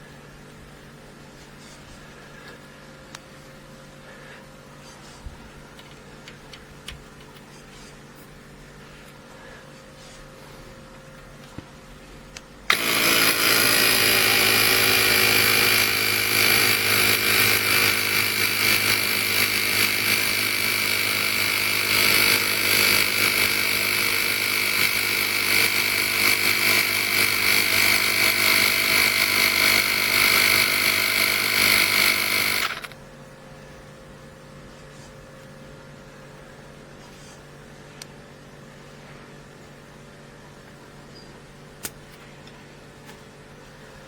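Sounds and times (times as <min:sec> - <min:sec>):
air compressor motor buzzing: 0:12.7 - 0:33.0.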